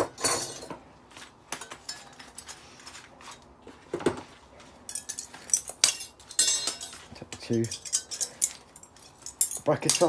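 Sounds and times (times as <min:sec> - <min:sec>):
small metal parts clinking: 0:04.9 - 0:10.0.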